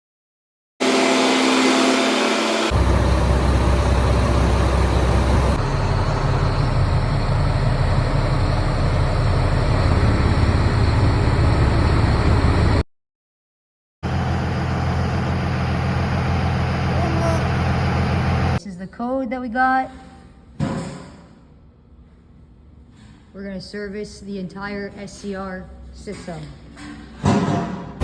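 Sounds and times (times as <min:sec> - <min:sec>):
higher humming tone: 0:00.8 - 0:12.8
diesel truck engine running: 0:02.4 - 0:12.8, 0:14.0 - 0:18.6.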